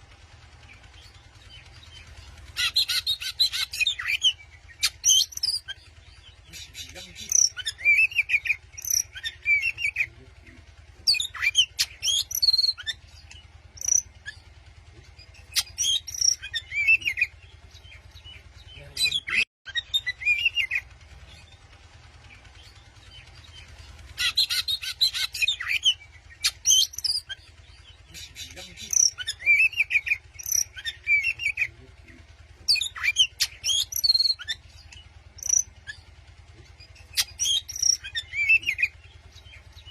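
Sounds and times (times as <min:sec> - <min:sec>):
steady low hum: 0:00.0 - 0:39.9
bird singing chirps and whistles: 0:02.6 - 0:05.8, 0:06.5 - 0:10.1, 0:11.1 - 0:14.4, 0:15.4 - 0:20.8, 0:22.6 - 0:31.7, 0:32.7 - 0:36.0, 0:37.0 - 0:39.9.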